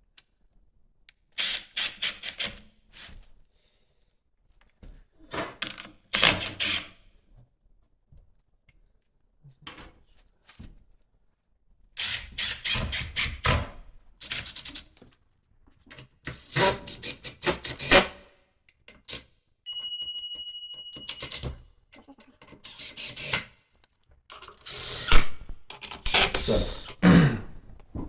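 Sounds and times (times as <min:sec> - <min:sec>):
scraping and knocking strokes: 0:24.3 - 0:27.0.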